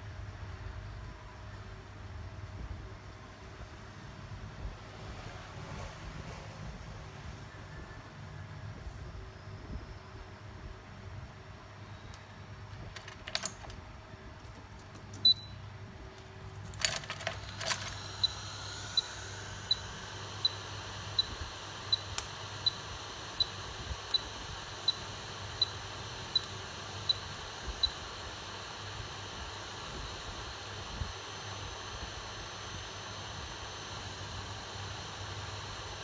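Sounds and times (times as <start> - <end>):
sharp clicks: 12.8 - 13.8, 16.6 - 29.1
electronic beeper beeping: 17.5 - 29.2
steady hiss: 18.0 - 36.0.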